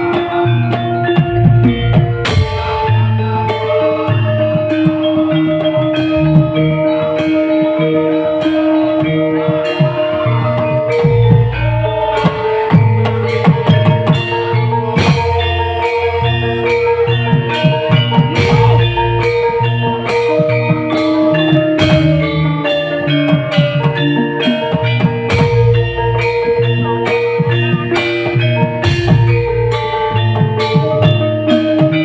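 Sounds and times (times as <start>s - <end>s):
steady bass line: 0.0s - 32.0s
sustained melodic notes: 0.0s - 32.0s
drum beat: 9.1s - 32.0s.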